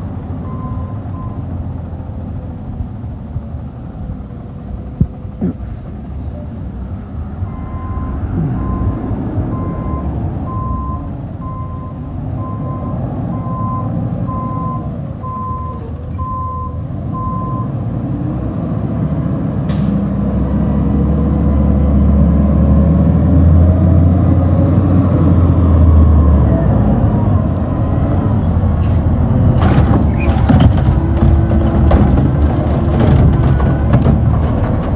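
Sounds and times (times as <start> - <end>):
diesel engine running: 0.0 - 34.9
reversing alarm beeps: 7.5 - 17.7.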